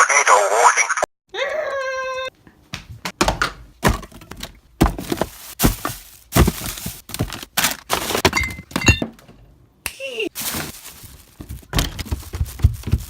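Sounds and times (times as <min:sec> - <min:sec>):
thuds and cracks of smashing: 0:03.2 - 0:09.2, 0:10.4 - 0:13.0.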